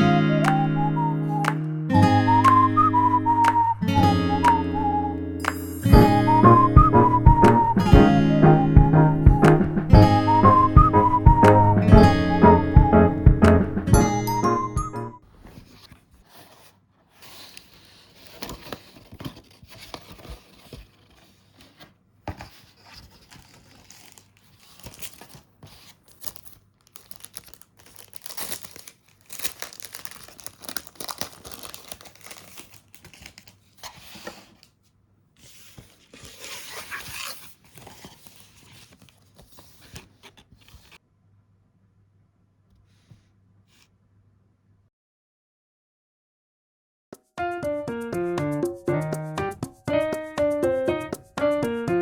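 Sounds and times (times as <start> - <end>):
rustling and crinkling: 15.2 - 41.0.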